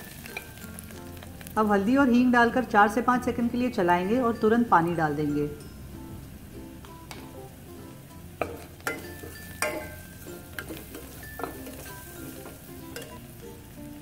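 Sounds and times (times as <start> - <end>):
spatula stirring in a pan: 0.0 - 1.5, 8.4 - 13.5
onions sizzling in hot oil: 0.0 - 14.0.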